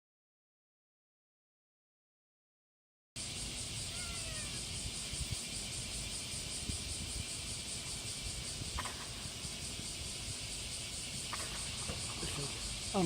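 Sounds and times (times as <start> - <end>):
insect chorus: 3.2 - 13.0.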